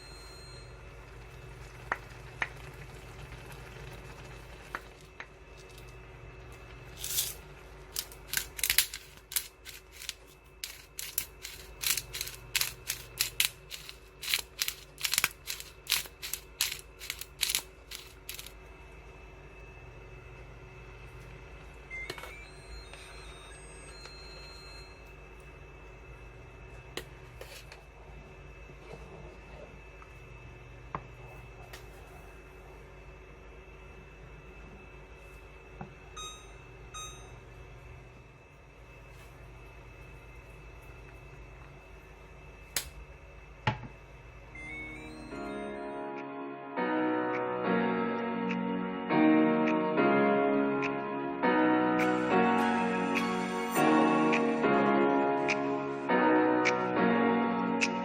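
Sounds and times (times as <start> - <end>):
low steady hum: 0.0 - 46.2.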